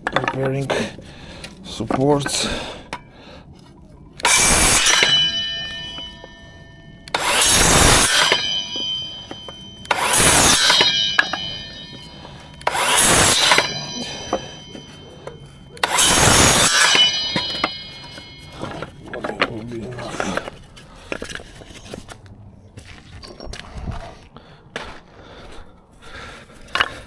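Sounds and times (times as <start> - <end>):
power saw cutting timber: 4.2 - 6.4, 7.1 - 22.0
ringing tone: 4.7 - 19.4.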